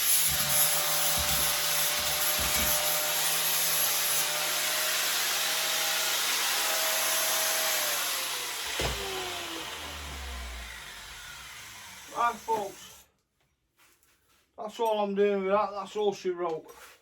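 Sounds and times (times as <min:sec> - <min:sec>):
power tool rasping on metal: 0:00.0 - 0:13.1.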